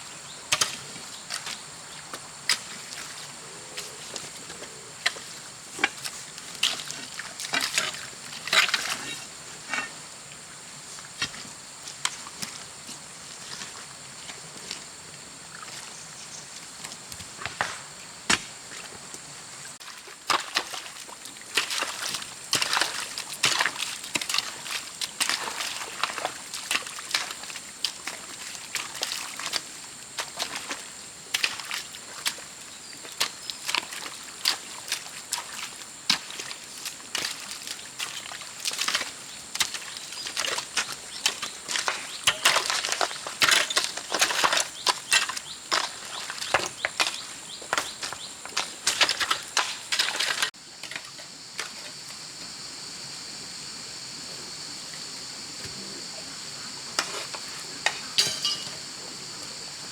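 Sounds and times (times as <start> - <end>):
wet mud slaps and squelches: 19.8 - 32.5, 33.1 - 50.5.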